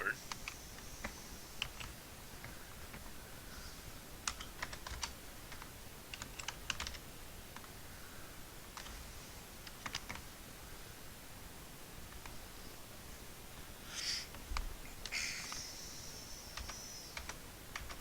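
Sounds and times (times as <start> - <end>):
keyboard typing clicks: 0.2 - 3.1, 4.2 - 7.0, 9.6 - 10.3, 16.6 - 18.0.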